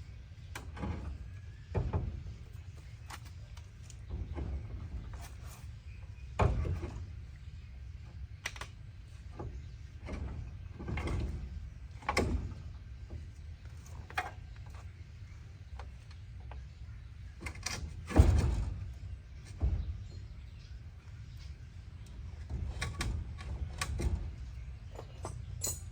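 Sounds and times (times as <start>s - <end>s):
knocks and clunks: 0.5s - 7.4s, 15.8s - 25.9s.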